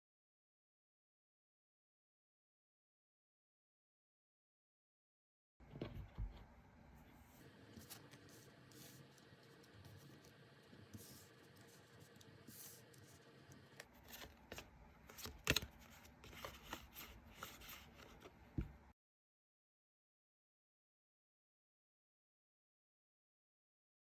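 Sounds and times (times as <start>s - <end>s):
cards rustling and sliding: 7.3s - 18.4s.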